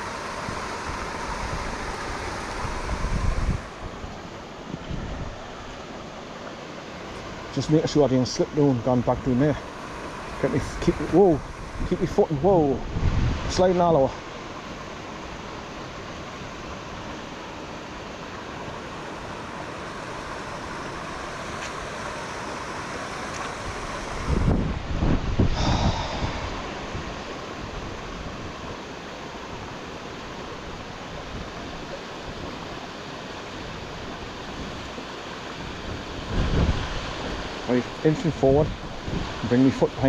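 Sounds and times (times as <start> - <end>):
wind buffeting on microphone: 0.0 - 5.6, 10.1 - 14.1, 23.3 - 28.9, 33.5 - 40.0
fast-flowing river rushing: 0.0 - 40.0.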